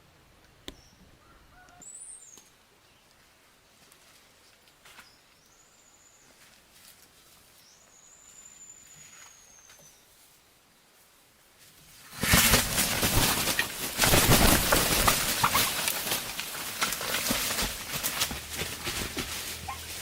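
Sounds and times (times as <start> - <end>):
faint high bird calls: 0.7 - 3.2, 7.5 - 10.5.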